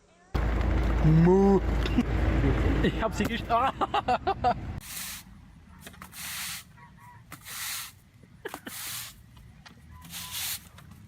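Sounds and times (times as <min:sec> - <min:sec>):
short sharp hisses: 0:04.8 - 0:05.3, 0:06.1 - 0:06.7, 0:07.4 - 0:08.0, 0:10.1 - 0:10.7.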